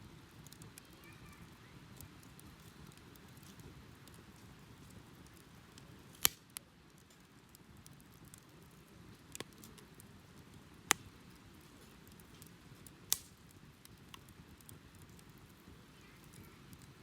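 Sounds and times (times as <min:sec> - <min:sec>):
low rush of flame: 0:00.0 - 0:17.0
wood fire crackling: 0:00.0 - 0:17.0
sharp pops of fire: 0:01.9 - 0:17.0.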